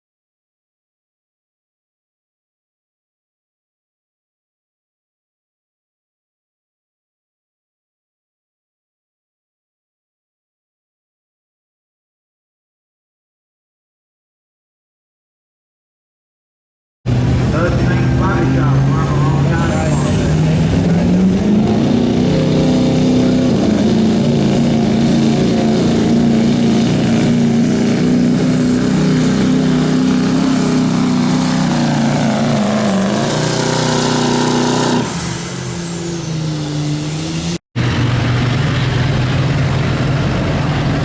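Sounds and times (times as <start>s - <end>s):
diesel truck engine under load: 17.1s - 41.0s
high whine: 17.1s - 41.0s.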